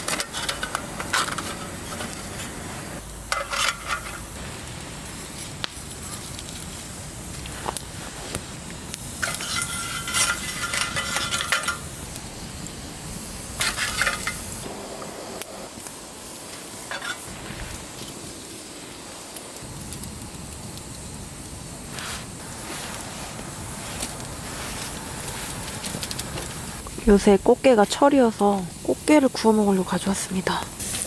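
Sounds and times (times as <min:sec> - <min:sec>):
cooking gear clattering: 0:00.0 - 0:02.6, 0:03.2 - 0:04.4, 0:09.2 - 0:11.9, 0:13.6 - 0:14.6.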